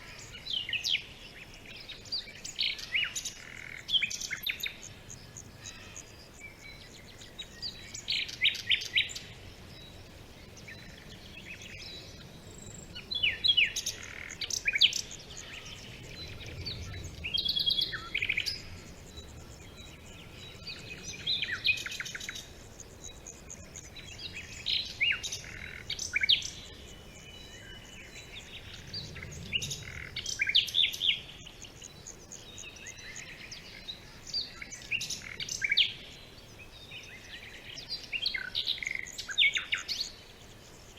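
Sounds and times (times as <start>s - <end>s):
birds chirping and trilling: 0.0s - 40.9s.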